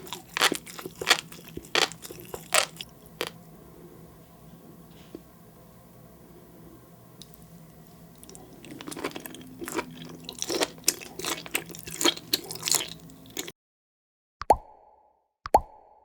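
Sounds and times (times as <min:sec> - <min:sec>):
crunchy chewing mouth sounds: 0:00.0 - 0:03.4, 0:08.2 - 0:13.5.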